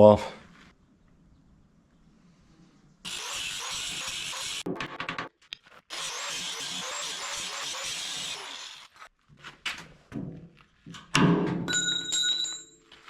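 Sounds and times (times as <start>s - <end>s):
chisel on steel welds: 3.0s - 4.7s, 5.9s - 9.1s
ringing metal chisel breaking: 11.7s - 12.8s.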